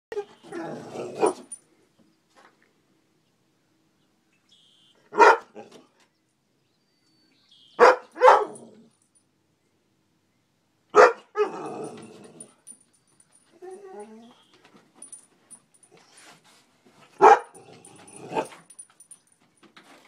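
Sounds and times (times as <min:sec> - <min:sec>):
dog barking sharply: 0:05.1 - 0:05.6, 0:07.8 - 0:08.6, 0:11.0 - 0:11.5, 0:17.2 - 0:17.5.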